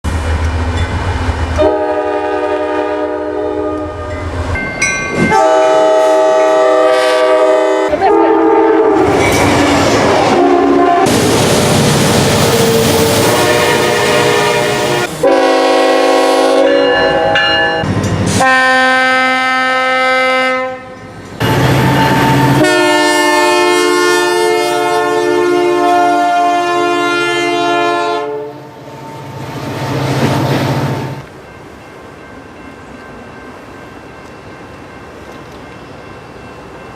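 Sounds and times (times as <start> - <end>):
train wheels on rails: 0.0 - 19.9, 20.8 - 25.1, 28.6 - 36.9
locomotive air horn blasts: 1.6 - 4.1, 5.3 - 9.2, 10.3 - 11.1, 12.5 - 28.7.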